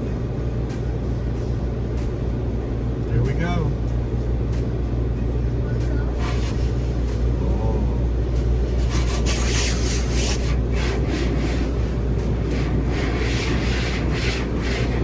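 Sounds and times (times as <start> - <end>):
steady low rumble: 0.0 - 15.0
car wash brushes scrubbing: 6.2 - 6.9, 8.7 - 15.0.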